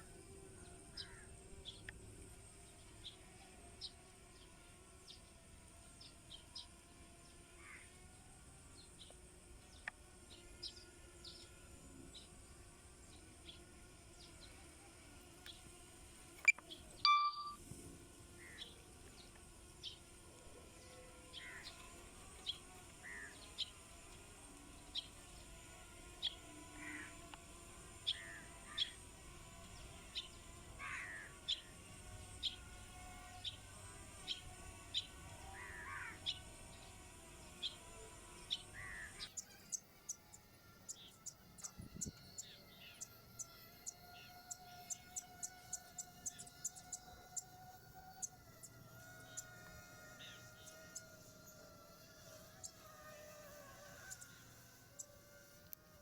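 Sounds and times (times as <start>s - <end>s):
small birds chirping: 0.0s - 17.6s, 18.4s - 55.9s
crow cawing: 1.0s - 1.3s, 7.6s - 7.9s, 21.4s - 21.7s, 23.0s - 23.3s, 26.8s - 27.2s, 30.8s - 31.4s, 35.5s - 36.3s, 38.8s - 39.2s
short beep: 17.0s - 17.6s.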